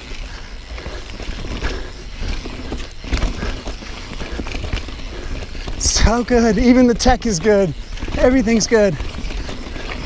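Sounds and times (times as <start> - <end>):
bike knocking and rattling: 0.0 - 10.0
bike tyres rumbling over rocks: 0.0 - 10.0.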